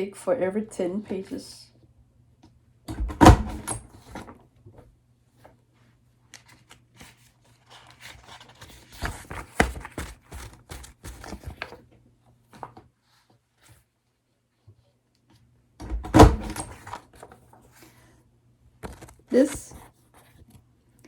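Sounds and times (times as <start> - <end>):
paper rustling and shuffling: 5.4 - 13.9, 18.8 - 20.6.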